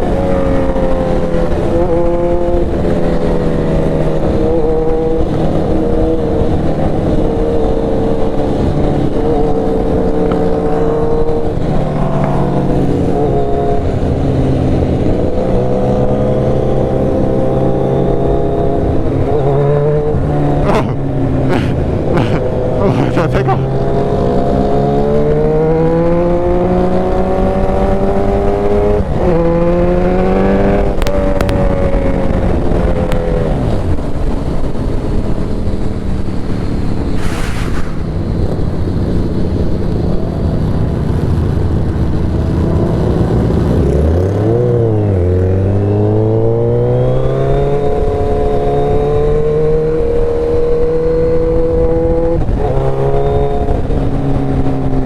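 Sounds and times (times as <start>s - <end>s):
motorcycle engine shifting gears: 23.6s - 37.1s.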